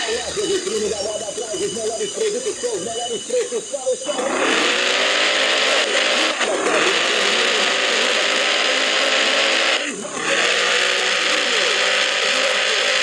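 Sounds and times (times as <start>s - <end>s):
distorted loudspeaker voice: 0.0s - 4.8s, 9.8s - 13.0s.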